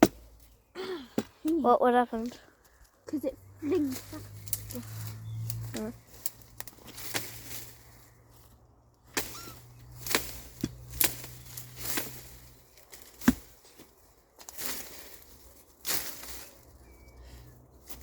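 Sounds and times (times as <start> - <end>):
sticks and brush rustling: 0.0 - 18.0
sticks cracking: 3.8 - 8.0, 9.0 - 16.7.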